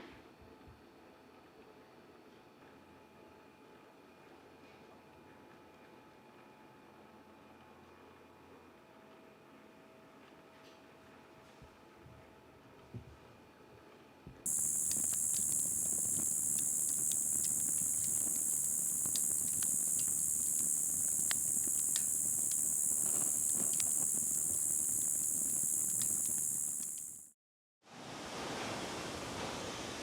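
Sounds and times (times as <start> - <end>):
high-pitched hiss with crackles: 14.5 - 27.4.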